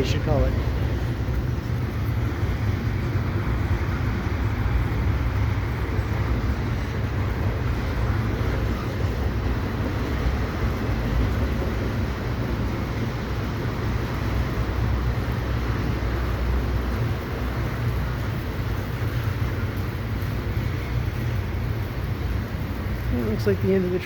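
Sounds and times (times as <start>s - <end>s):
heavy rain hissing: 0.0s - 24.0s
train cars rumbling on rails: 0.0s - 24.0s.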